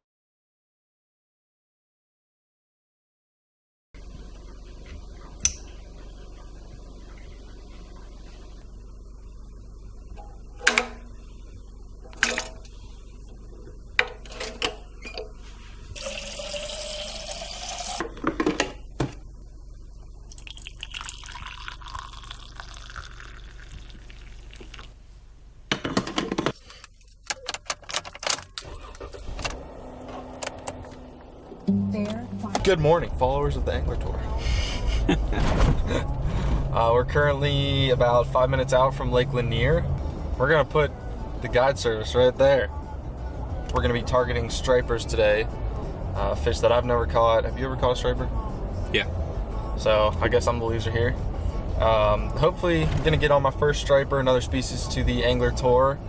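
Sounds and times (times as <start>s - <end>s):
steady low hum: 4.0s - 27.3s, 28.6s - 56.0s
water running: 15.9s - 18.2s, 20.2s - 25.0s.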